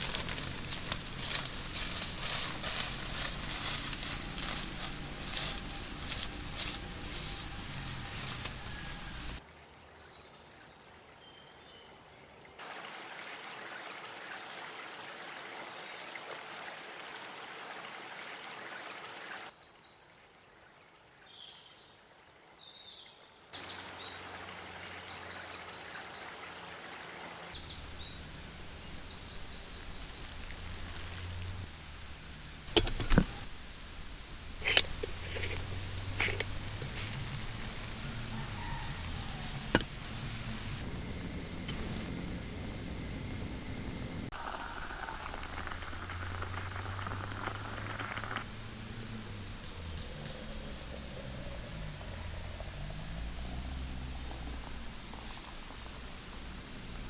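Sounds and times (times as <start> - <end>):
running water or rain: 23.6 - 32.8, 44.2 - 57.0
low hum: 34.6 - 44.3.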